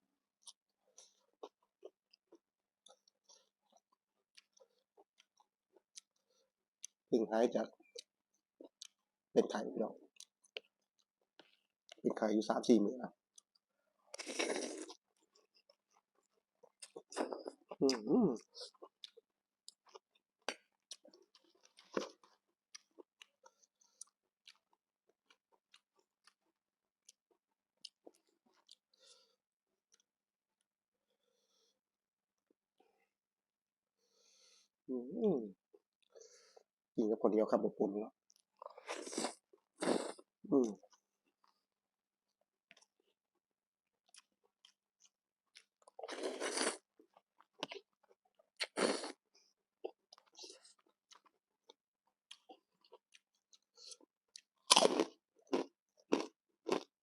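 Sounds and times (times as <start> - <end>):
person chewing food: 0.4 - 7.0, 7.8 - 9.1, 10.1 - 12.0, 13.3 - 30.1, 38.2 - 41.7, 43.9 - 57.0
person eating noodle soup: 14.1 - 20.1, 38.3 - 40.8, 45.6 - 51.3, 52.3 - 56.9.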